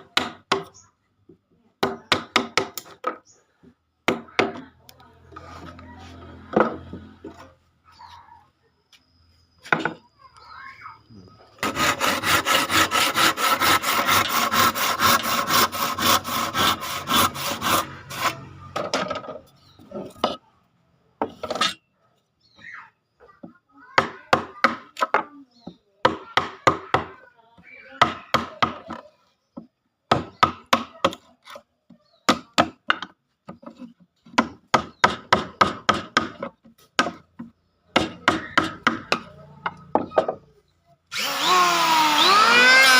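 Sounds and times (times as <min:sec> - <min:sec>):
handsaw cutting wood: 0:11.6 - 0:18.5, 0:41.1 - 0:42.9.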